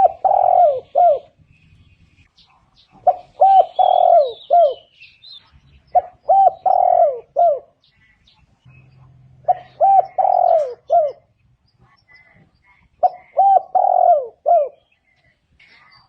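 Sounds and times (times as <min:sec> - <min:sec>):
dove cooing: 0:00.0 - 0:01.8, 0:02.8 - 0:05.0, 0:05.9 - 0:07.8, 0:09.4 - 0:11.3, 0:13.0 - 0:15.0
small bird chirping: 0:00.0 - 0:16.0.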